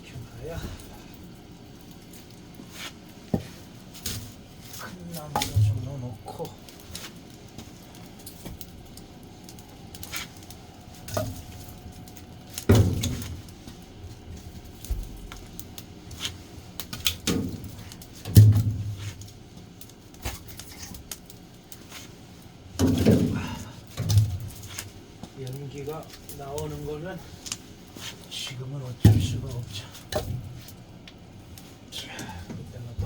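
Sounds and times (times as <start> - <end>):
logs thudding into firebox: 3.3 - 13.8, 14.4 - 19.3, 22.7 - 28.2, 28.8 - 30.8.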